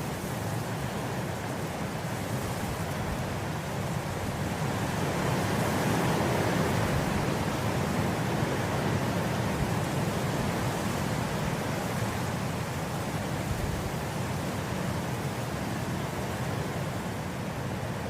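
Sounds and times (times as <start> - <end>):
wind blowing through grass: 0.0 - 18.0.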